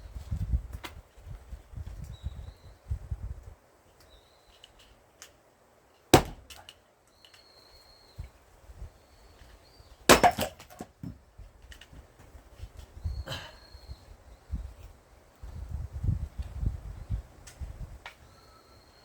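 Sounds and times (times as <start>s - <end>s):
wood splitting crackle: 6.0s - 7.4s, 10.1s - 11.9s
axe striking firewood: 6.1s - 6.7s, 10.1s - 11.2s.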